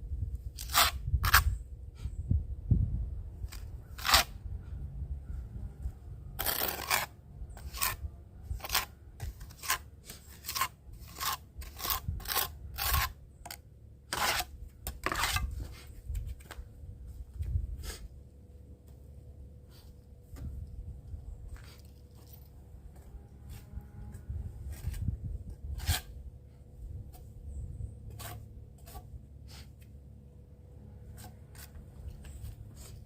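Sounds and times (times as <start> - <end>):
low background rumble: 0.0 - 10.0
gritty scraping strokes: 0.4 - 2.2, 3.4 - 4.9, 5.8 - 18.2, 21.2 - 30.0, 31.0 - 33.0.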